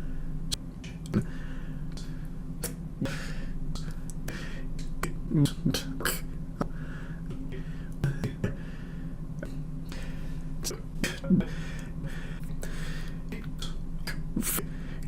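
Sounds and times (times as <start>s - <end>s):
steady low hum: 0.0s - 15.0s
mouth clicks and smacks: 0.5s - 1.3s, 1.9s - 8.6s, 9.4s - 14.7s
man breathing: 1.2s - 4.8s, 6.6s - 9.3s, 9.9s - 13.3s, 14.5s - 15.0s.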